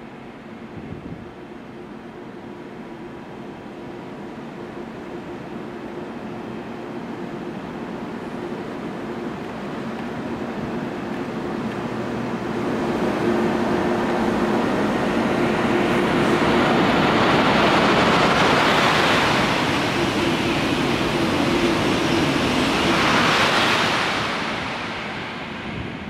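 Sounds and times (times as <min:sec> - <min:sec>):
high-speed train rushing past: 0:00.0 - 0:26.0.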